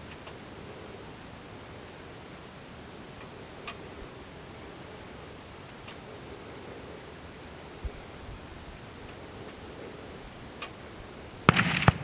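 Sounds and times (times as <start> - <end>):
wind hiss on microphone: 0.0 - 12.0.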